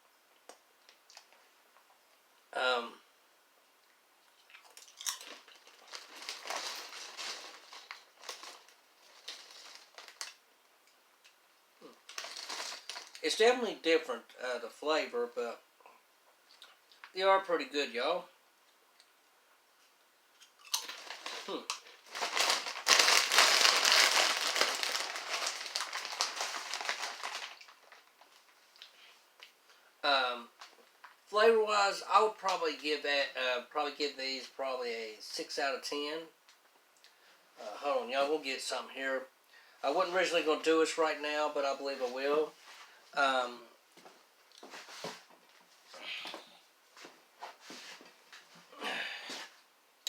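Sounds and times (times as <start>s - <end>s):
crisps crunching: 4.4s - 10.4s, 11.2s - 13.4s, 20.4s - 29.0s.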